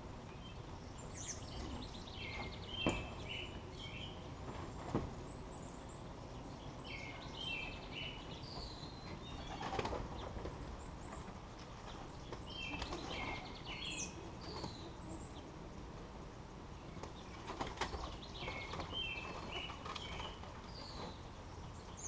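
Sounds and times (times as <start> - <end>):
small birds chirping: 0.0 - 22.0
pigeon wings flapping: 9.5 - 10.2.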